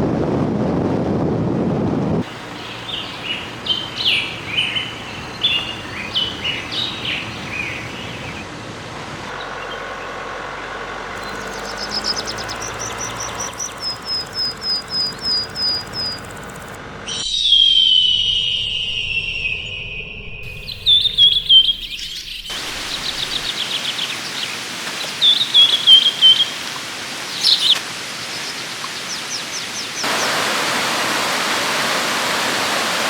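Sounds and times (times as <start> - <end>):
birds chirping: 2.2 - 33.0
waterfall rushing: 22.5 - 33.0.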